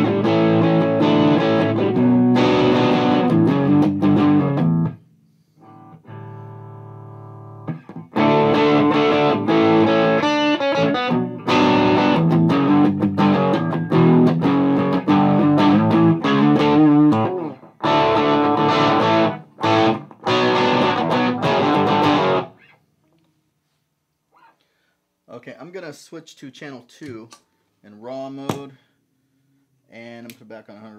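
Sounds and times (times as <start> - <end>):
electric guitar chords and riffs: 0.0 - 5.0, 5.6 - 22.8.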